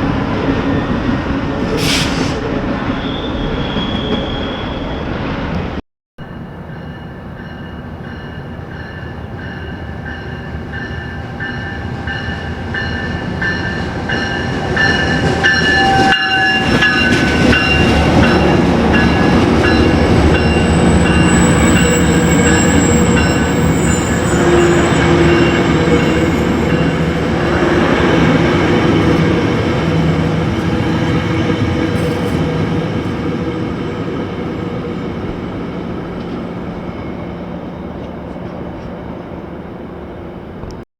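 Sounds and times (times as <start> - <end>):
high wheel squeal: 1.8 - 5.2, 14.9 - 32.8
train wheels rumbling and clacking: 7.4 - 39.4.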